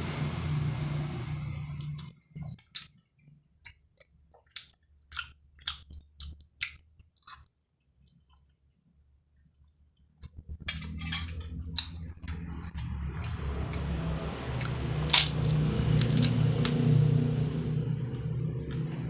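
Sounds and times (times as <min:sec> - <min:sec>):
vehicle engine running: 0:00.0 - 0:02.6, 0:10.3 - 0:19.0.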